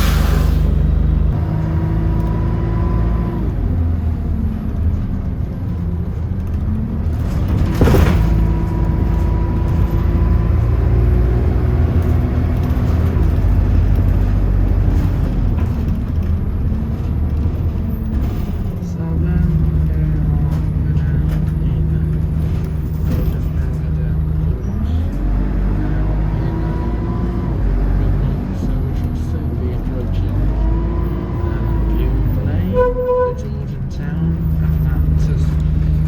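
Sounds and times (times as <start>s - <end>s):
bus engine rumbling: 0.0s - 36.0s.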